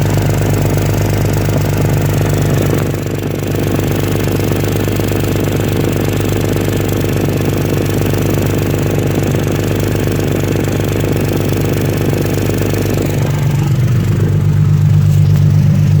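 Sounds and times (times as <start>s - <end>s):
engine idling with exhaust leak: 0.0s - 16.0s.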